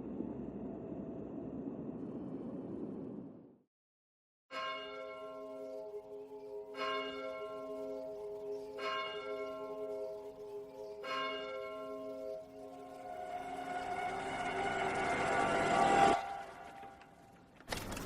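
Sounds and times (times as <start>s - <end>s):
bell chimes: 4.5s - 15.4s.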